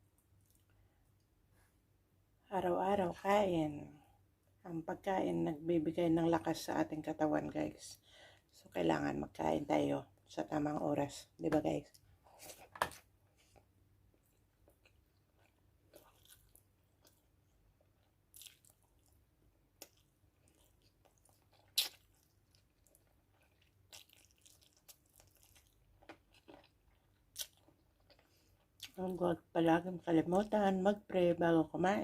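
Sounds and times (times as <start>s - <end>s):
person chewing crunchy food: 11.9s - 29.0s.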